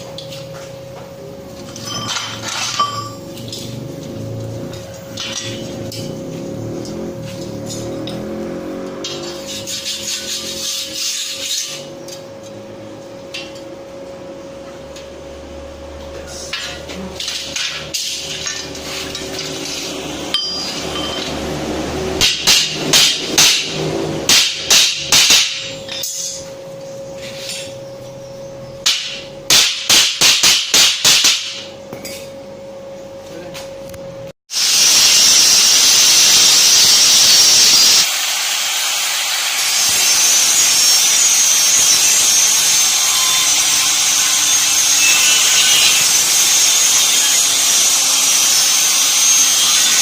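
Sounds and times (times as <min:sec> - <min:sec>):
hammer striking steel plate: 0:17.3 - 0:21.4, 0:22.2 - 0:26.4, 0:28.8 - 0:32.2.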